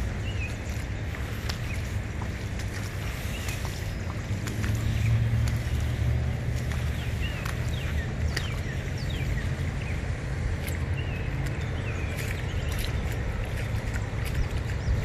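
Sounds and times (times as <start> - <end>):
steady low rumble: 0.0 - 15.0
birds whistling: 6.8 - 10.0.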